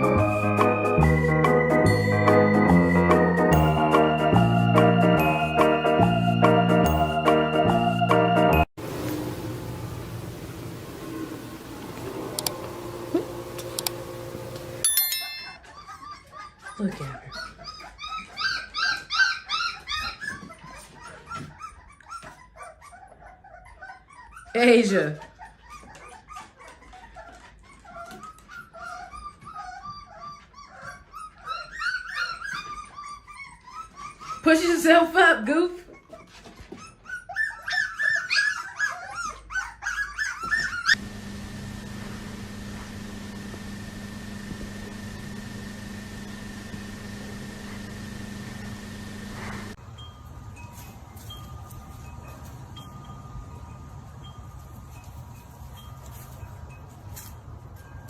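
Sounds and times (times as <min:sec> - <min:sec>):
dog whining in high yips: 0:15.2 - 0:24.6, 0:25.3 - 0:34.6, 0:35.9 - 0:41.0.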